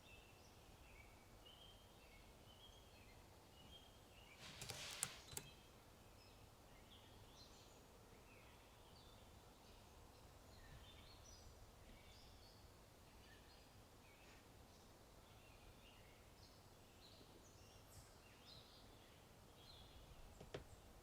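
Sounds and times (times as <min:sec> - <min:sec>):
faint birds chirping: 0:00.0 - 0:21.0
keyboard typing clicks: 0:04.4 - 0:05.6.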